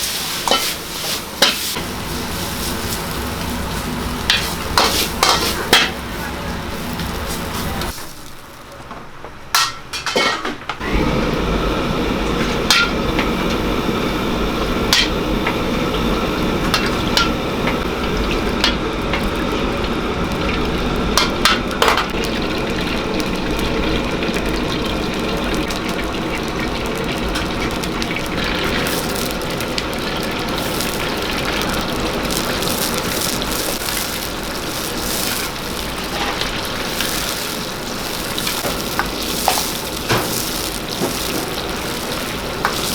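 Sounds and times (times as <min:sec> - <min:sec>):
food sizzling in hot oil: 0:00.0 - 0:08.6, 0:10.8 - 0:42.9
metal ladle clanking on wok: 0:09.5 - 0:10.6.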